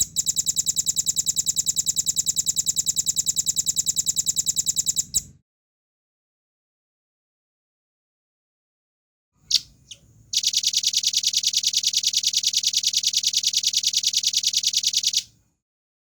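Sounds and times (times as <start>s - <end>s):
bird fast trill: 9.5s - 15.2s.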